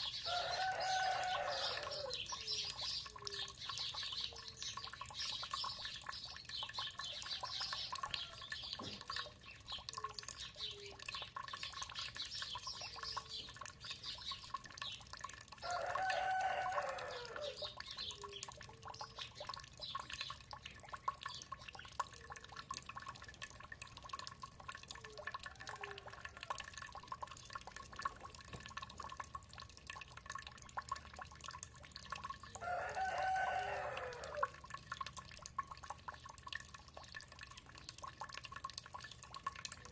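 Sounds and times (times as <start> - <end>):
small birds chirping: 0.0 - 15.3, 17.0 - 22.8
water dripping: 0.0 - 39.9
rooster crowing: 0.3 - 2.1, 15.6 - 17.6, 32.6 - 34.6.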